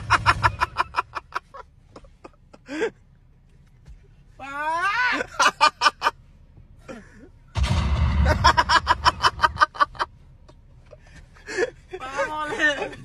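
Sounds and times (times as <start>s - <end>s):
deep rumble: 7.5s - 10.4s.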